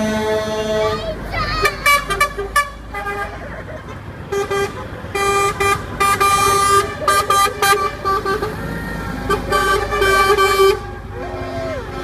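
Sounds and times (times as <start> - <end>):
truck horn blasts: 0.0 - 3.5, 4.2 - 12.0
truck engines rumbling: 0.0 - 12.0.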